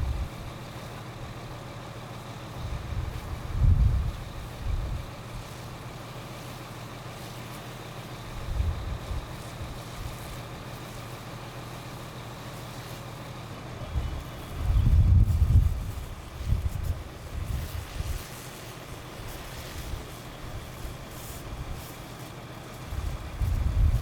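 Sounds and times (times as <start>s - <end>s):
wind buffeting microphone: 0.0s - 0.5s, 2.6s - 5.6s, 8.3s - 10.3s, 13.9s - 18.4s, 22.9s - 24.0s
fire truck engine humming: 0.0s - 24.0s.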